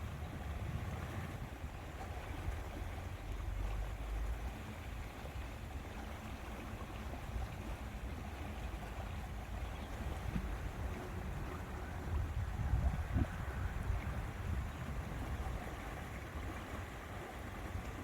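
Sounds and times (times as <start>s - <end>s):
wind buffeting microphone: 0.0s - 1.9s, 9.2s - 18.0s.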